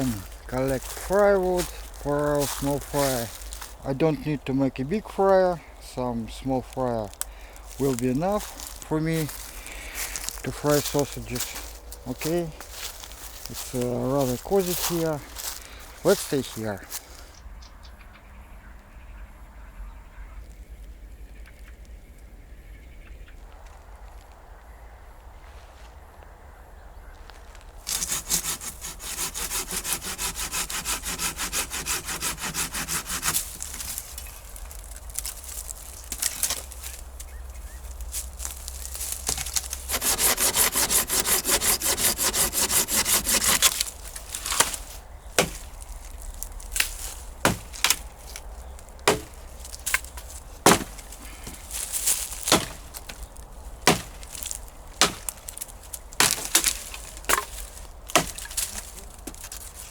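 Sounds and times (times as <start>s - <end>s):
wood cracking: 27.6s - 59.9s
saw cutting wood: 27.9s - 34.0s, 39.2s - 45.8s, 46.9s - 48.4s, 49.0s - 59.7s.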